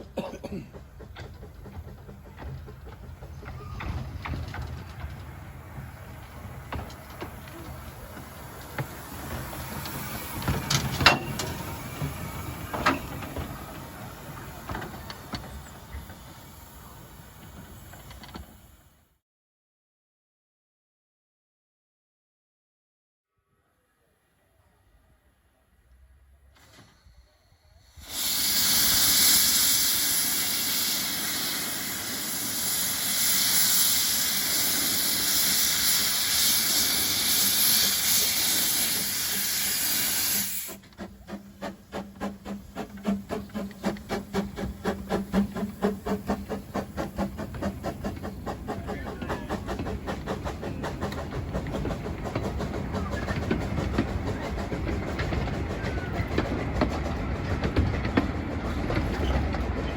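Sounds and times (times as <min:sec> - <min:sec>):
steam locomotive hissing steam: 0:00.0 - 0:19.1, 0:24.4 - 0:59.9
steam engine exhaust beats: 0:28.0 - 0:59.9.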